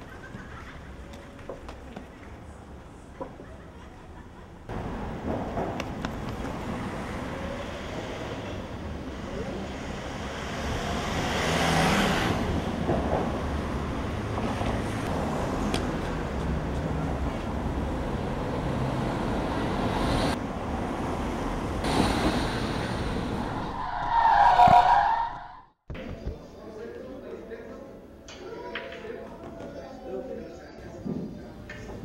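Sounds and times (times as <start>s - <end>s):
road traffic rumbling: 0.0s - 25.8s
loud squealing burst: 23.2s - 25.8s.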